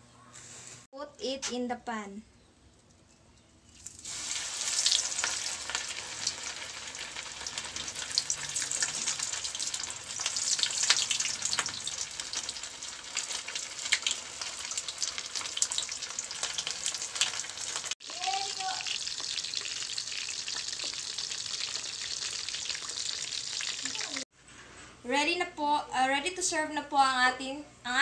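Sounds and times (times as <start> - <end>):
oil popping and crackling: 3.7 - 24.2
chicken frying in hot oil: 3.9 - 24.2.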